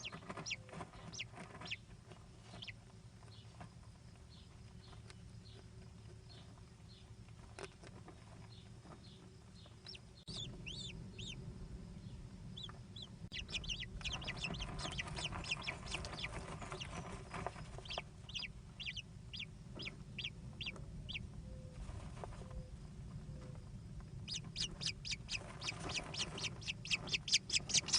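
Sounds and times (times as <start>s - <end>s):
rustling noise: 0.0s - 10.6s, 13.3s - 18.5s, 21.7s - 27.9s
kestrels calling: 9.6s - 11.4s, 12.1s - 21.3s, 24.3s - 27.9s.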